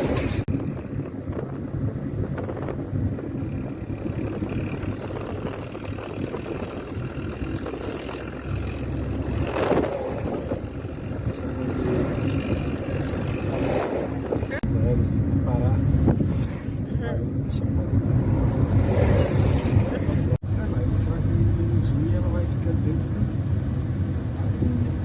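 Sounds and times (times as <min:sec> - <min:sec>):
truck diesel engine drone: 0:00.0 - 0:25.0
vehicle passing close: 0:02.7 - 0:14.6, 0:17.7 - 0:25.0.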